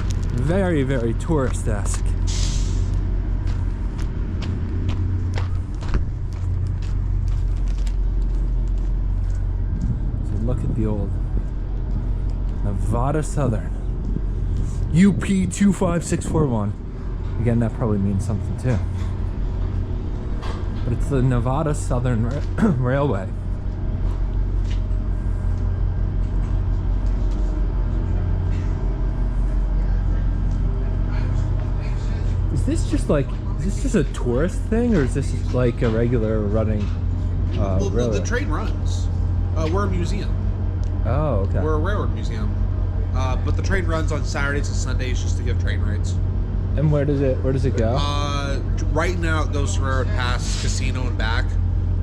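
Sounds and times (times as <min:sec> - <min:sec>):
low engine rumble: 0:00.0 - 0:52.0.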